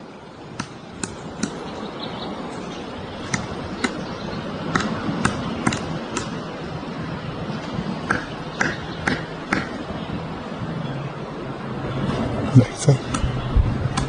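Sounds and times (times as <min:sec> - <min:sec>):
background noise: 0:00.0 - 0:14.0
woodpecker tapping on wood: 0:00.6 - 0:01.7, 0:02.6 - 0:06.5, 0:08.0 - 0:09.8.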